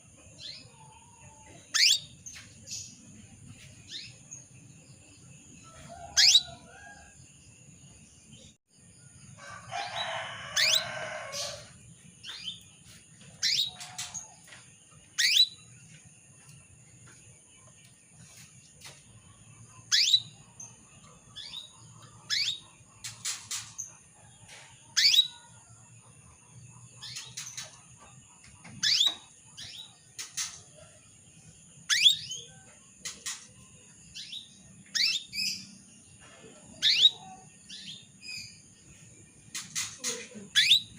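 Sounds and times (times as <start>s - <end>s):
canary chirping: 0.4s - 7.0s, 9.8s - 16.0s, 18.2s - 24.2s, 25.0s - 25.4s, 28.6s - 30.7s, 31.7s - 38.7s, 39.5s - 40.9s.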